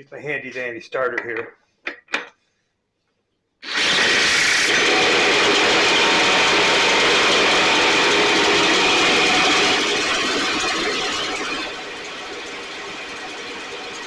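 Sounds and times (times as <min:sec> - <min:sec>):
powered starter whirring engine: 0:03.6 - 0:14.0.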